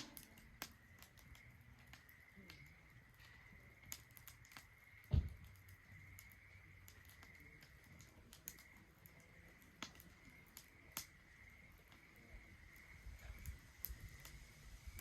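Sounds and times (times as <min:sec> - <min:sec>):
wood fire crackling: 0:00.0 - 0:15.0
dull low thump: 0:05.0 - 0:05.5.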